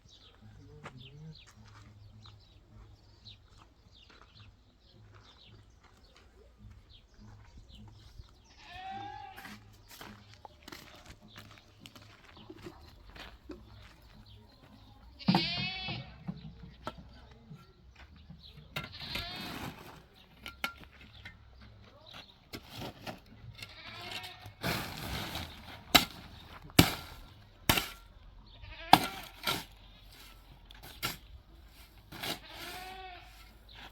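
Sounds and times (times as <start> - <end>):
livestock bleating: 8.5 - 9.6, 15.2 - 16.3, 18.8 - 19.6, 23.6 - 24.6, 28.5 - 29.4, 32.3 - 33.5.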